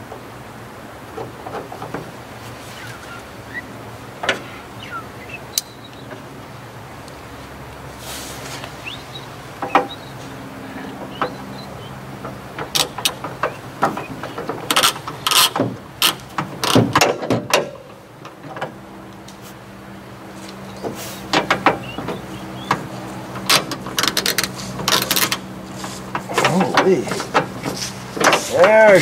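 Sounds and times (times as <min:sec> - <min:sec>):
steady low hum: 0:00.0 - 0:29.0
ratchet clicks: 0:23.4 - 0:25.4.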